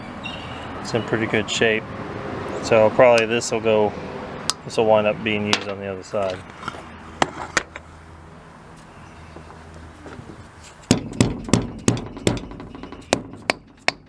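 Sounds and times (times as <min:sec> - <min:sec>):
hammer striking metal: 0:10.8 - 0:14.0.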